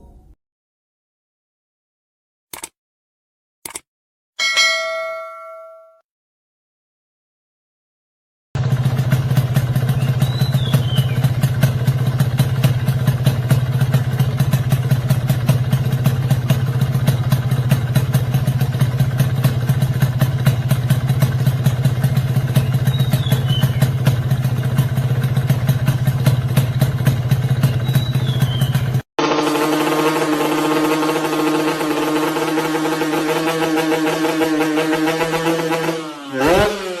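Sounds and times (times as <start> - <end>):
two-stroke engine idling: 8.6 - 34.8.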